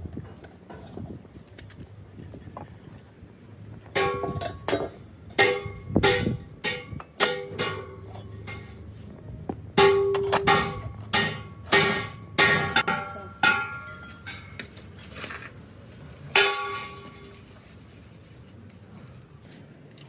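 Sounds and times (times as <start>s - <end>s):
hammer striking metal: 5.4s - 8.8s, 9.8s - 14.6s.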